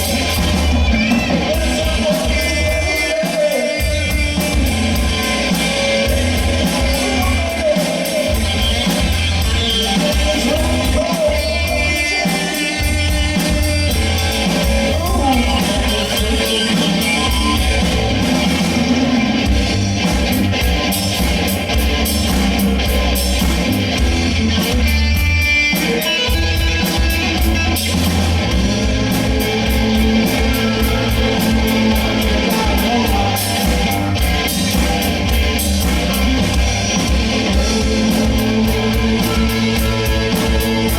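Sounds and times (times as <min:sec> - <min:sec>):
person singing: 0:00.0 - 0:18.3, 0:28.5 - 0:35.4, 0:37.0 - 0:40.9
bass guitar: 0:00.0 - 0:40.9
drums: 0:00.0 - 0:40.9
electric guitar: 0:00.0 - 0:40.9.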